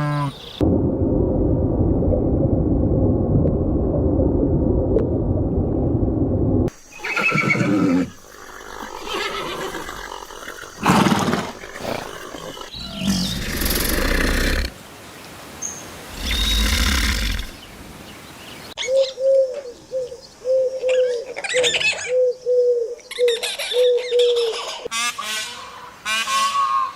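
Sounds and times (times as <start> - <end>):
horse neighing: 6.9 - 14.7.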